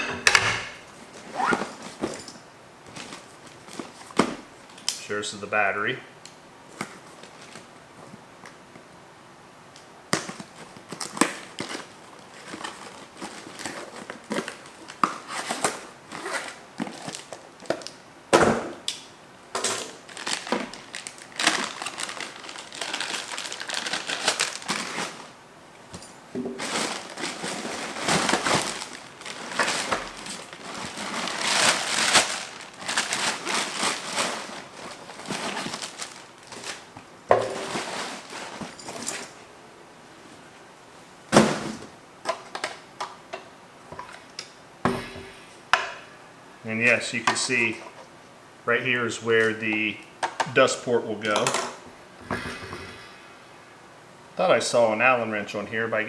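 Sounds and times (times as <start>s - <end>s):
plastic packaging crinkling: 10.2s - 18.0s, 19.6s - 25.4s, 26.0s - 39.2s.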